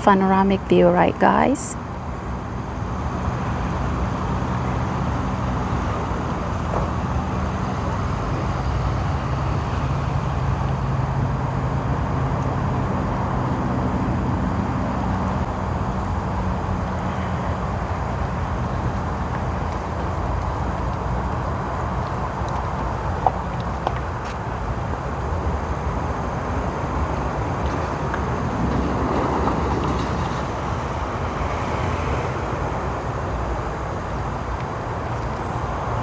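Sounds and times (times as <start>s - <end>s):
traffic rumble: 0.0s - 36.0s.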